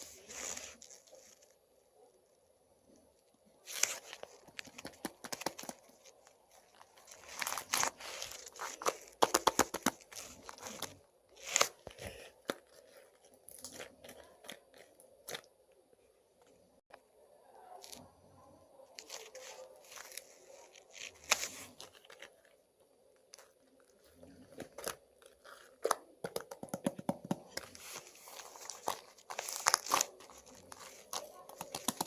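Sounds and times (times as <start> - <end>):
slime crackling and popping: 3.8 - 11.8, 24.6 - 32.0.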